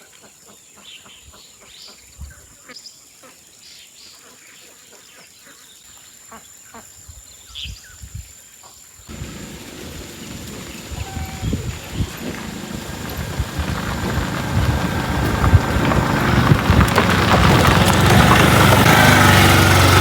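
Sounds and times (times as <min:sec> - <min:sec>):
low thumps: 0:09.1 - 0:20.0
rushing noise: 0:09.1 - 0:20.0.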